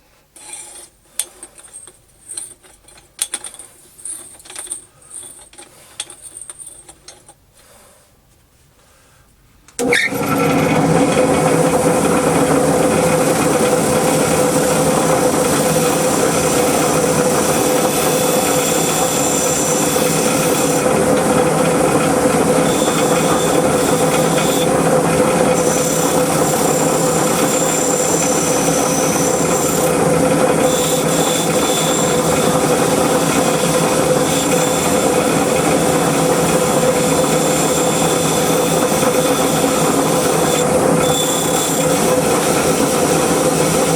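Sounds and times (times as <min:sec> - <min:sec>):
power tool working metal: 0:09.8 - 0:43.9.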